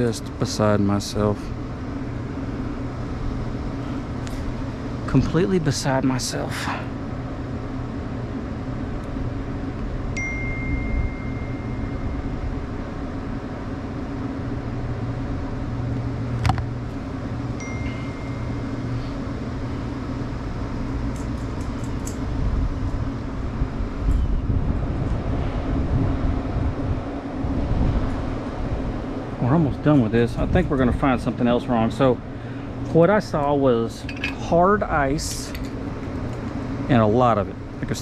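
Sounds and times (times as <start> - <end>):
low machinery hum: 0.0 - 38.0.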